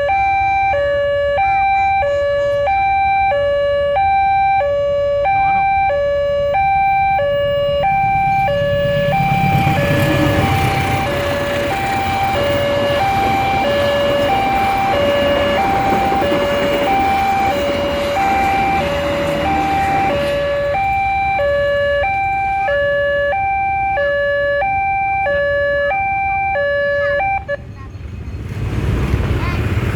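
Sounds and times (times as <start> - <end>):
level crossing alarm: 0.0 - 27.7
train rumbling past: 7.0 - 23.4, 27.6 - 29.9.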